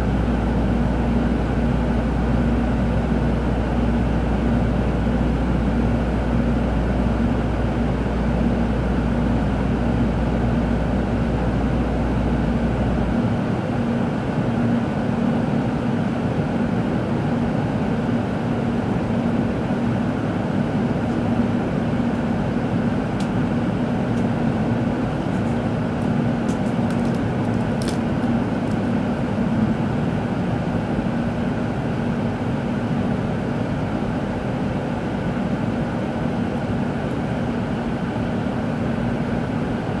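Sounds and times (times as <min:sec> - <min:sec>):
train running rumble and hum: 0:23.0 - 0:32.2.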